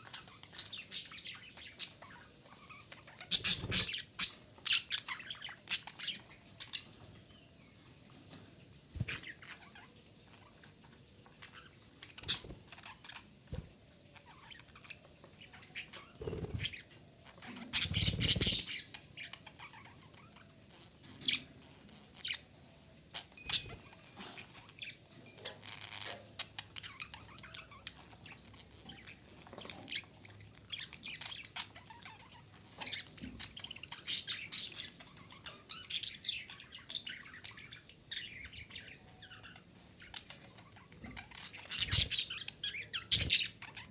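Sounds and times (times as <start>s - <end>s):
rustle: 0.0s - 43.9s
budgerigar chirping: 3.2s - 4.9s, 12.2s - 12.6s, 17.8s - 18.6s.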